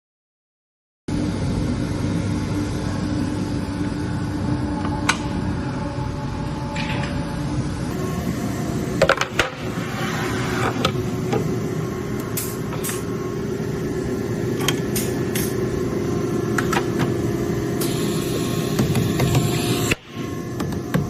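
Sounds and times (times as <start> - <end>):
machine hum with held tone: 1.1 - 21.0.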